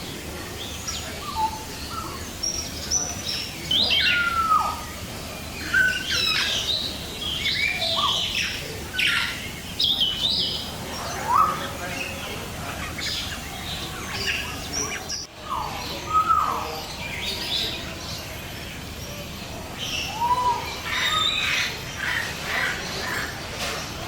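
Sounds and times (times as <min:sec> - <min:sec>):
whistled bird calls: 0:00.6 - 0:12.2, 0:12.8 - 0:17.8, 0:19.8 - 0:23.4
high bird chirps: 0:19.8 - 0:22.3.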